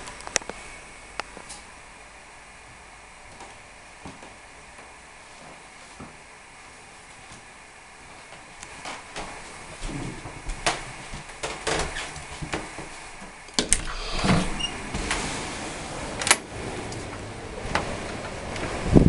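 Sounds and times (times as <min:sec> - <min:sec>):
low rumble: 0:13.7 - 0:19.0
rushing noise: 0:13.7 - 0:19.0.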